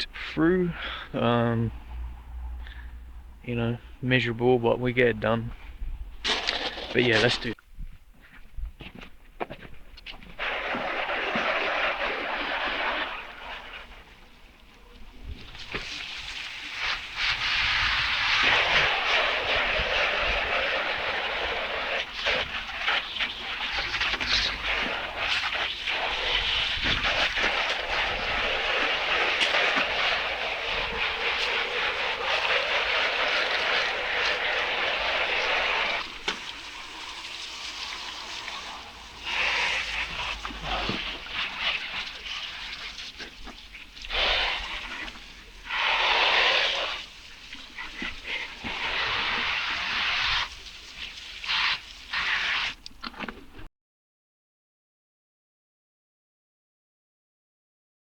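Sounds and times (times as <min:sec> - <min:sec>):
pressure washer spraying: 0:06.2 - 0:07.0, 0:10.4 - 0:15.0, 0:15.6 - 0:52.8.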